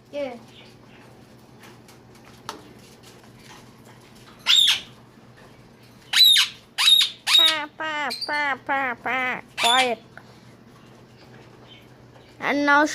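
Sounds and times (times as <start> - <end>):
bird squawking: 4.4 - 5.0, 6.1 - 10.0.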